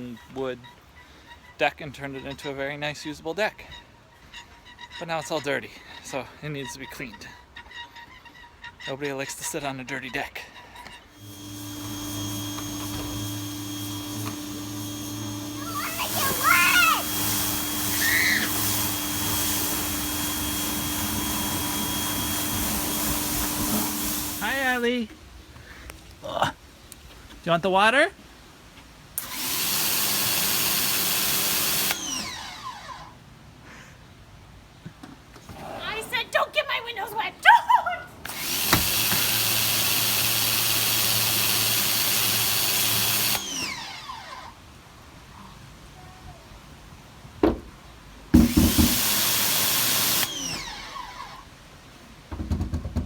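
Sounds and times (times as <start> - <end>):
motor hum winding down: 11.2 - 24.8, 29.2 - 33.1, 38.3 - 44.5, 48.5 - 51.4
pressure washer spraying water: 11.2 - 24.8, 29.2 - 32.3, 38.3 - 43.5, 48.4 - 50.7.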